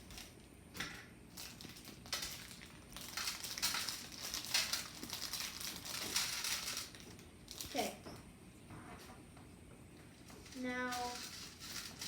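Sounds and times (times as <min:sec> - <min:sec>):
plastic packaging crinkling: 0:01.3 - 0:08.0, 0:10.4 - 0:12.0.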